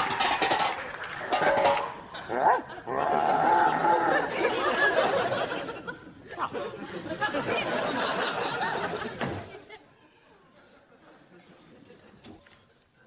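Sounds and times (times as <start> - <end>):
people laughing: 0.0 - 12.3
voices chattering: 0.0 - 12.9.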